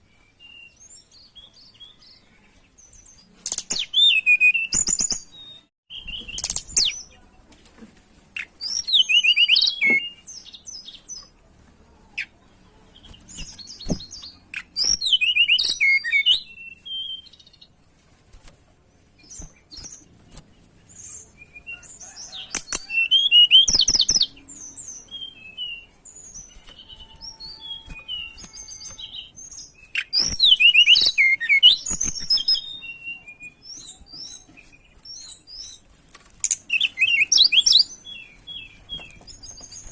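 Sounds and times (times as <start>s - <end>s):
bird chirps and trills: 8.4s - 11.3s, 12.2s - 17.7s, 19.0s - 39.9s.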